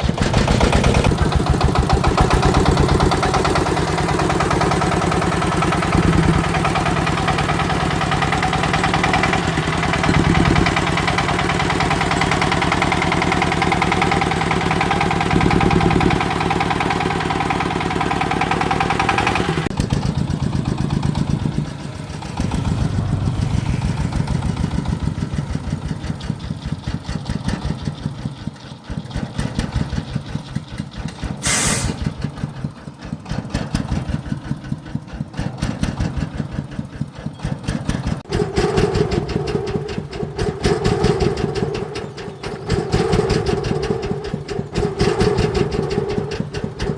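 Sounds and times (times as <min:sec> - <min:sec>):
tractor engine running hard: 0:00.0 - 0:46.9
short high hiss: 0:31.4 - 0:32.1.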